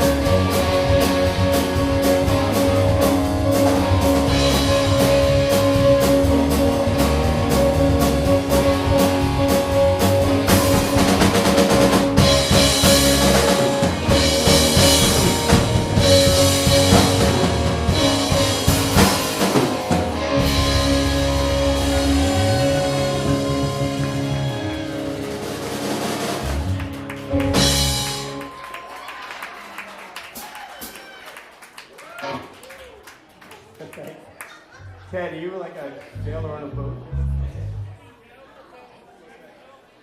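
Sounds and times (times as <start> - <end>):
drum kit beat: 0.0 - 28.5
electric guitar: 0.0 - 28.6.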